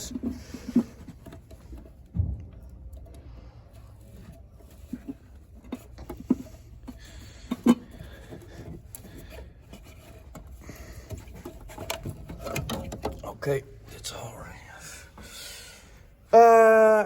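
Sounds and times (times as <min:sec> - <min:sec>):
plastic rubbing: 0:00.0 - 0:13.6
connector clicks and knocks: 0:11.1 - 0:13.2.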